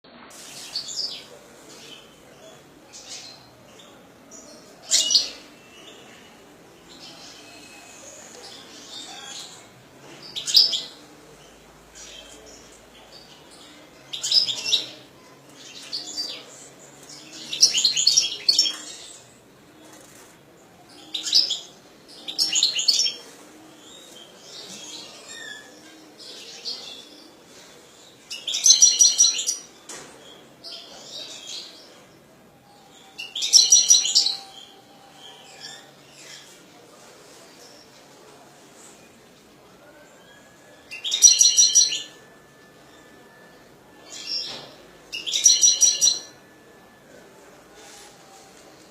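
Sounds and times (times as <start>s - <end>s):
bird singing: 40.3s - 47.0s.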